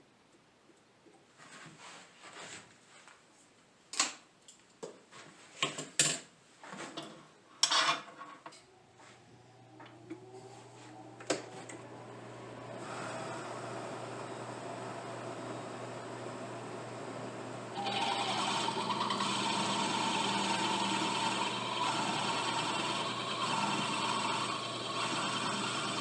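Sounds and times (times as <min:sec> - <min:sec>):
power tool motor whine: 0:10.2 - 0:16.1, 0:17.7 - 0:26.0.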